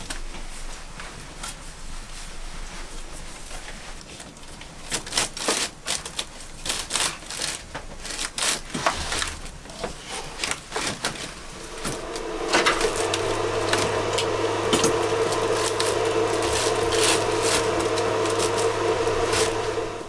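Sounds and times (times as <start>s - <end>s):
irregular clicking and knocking: 5.0s - 20.0s.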